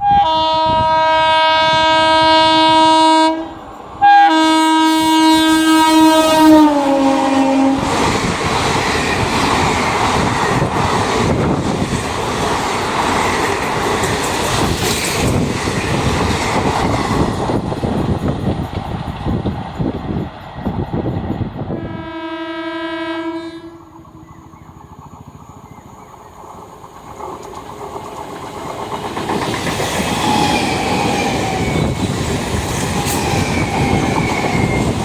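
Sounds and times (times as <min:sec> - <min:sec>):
train horn blast: 0:00.0 - 0:07.9, 0:21.7 - 0:24.3
train rushing by: 0:00.0 - 0:35.0.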